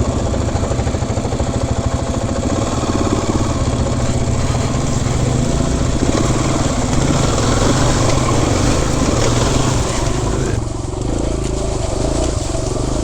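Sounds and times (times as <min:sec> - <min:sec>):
dirt bike engine running: 0:00.0 - 0:13.0
rushing noise: 0:02.5 - 0:13.0.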